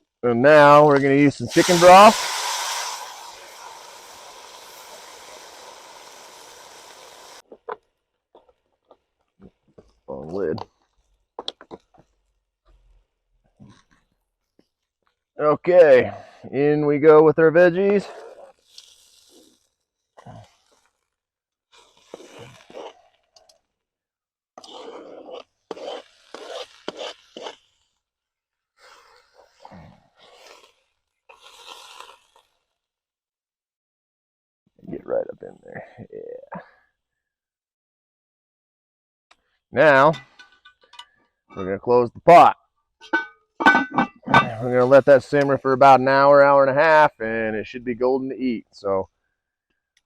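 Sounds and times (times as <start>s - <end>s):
liquid sizzling in a pot: 0.9s - 7.5s.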